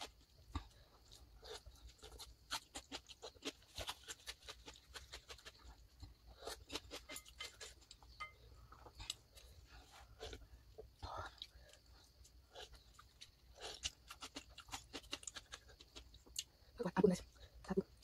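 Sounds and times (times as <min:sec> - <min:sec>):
noodles being chewed: 0:00.0 - 0:16.7.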